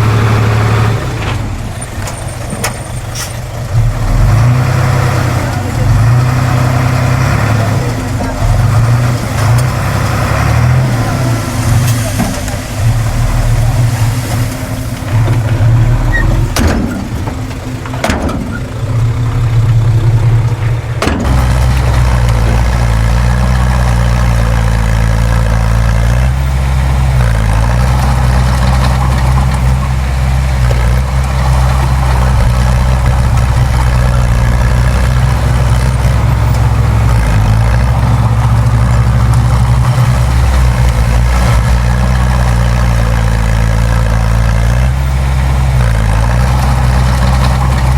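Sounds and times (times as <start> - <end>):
heavy diesel engine running: 0.0 - 47.9
sharp knocks: 16.5 - 18.8, 21.0 - 22.8.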